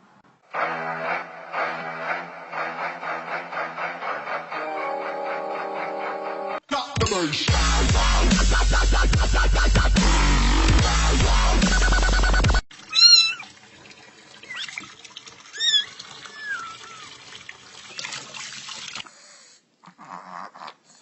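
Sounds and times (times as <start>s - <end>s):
dubstep music: 6.7s - 12.6s
cat meowing: 12.9s - 13.5s, 15.6s - 17.1s.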